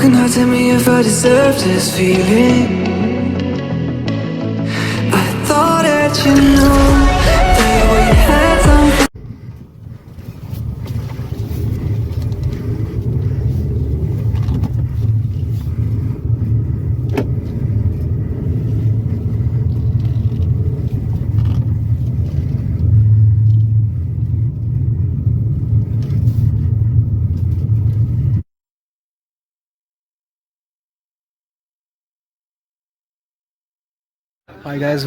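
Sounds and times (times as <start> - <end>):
car road rumble: 5.1 - 28.4.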